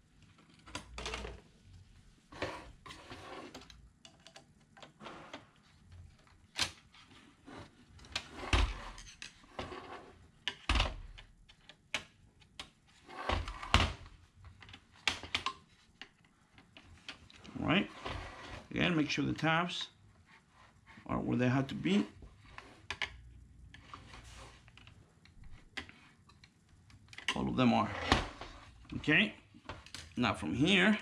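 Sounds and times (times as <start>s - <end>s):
plastic parts clicking and knocking: 3.5s - 6.9s, 10.4s - 17.5s, 22.8s - 29.0s, 29.6s - 30.2s.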